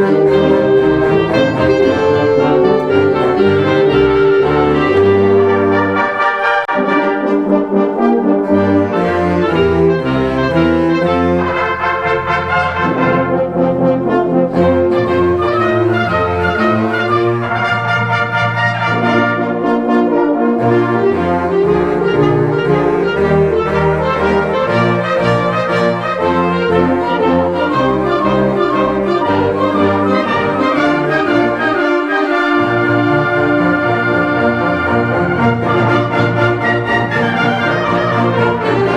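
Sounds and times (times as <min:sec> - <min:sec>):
concert band playing: 0:00.0 - 0:18.2
brass held chords: 0:00.0 - 0:38.9.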